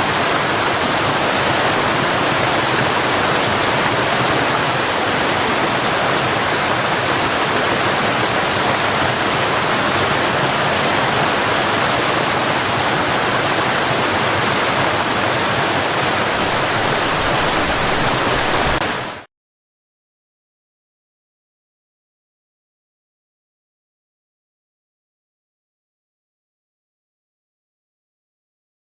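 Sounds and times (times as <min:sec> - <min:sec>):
flowing water rushing: 0:00.0 - 0:19.3.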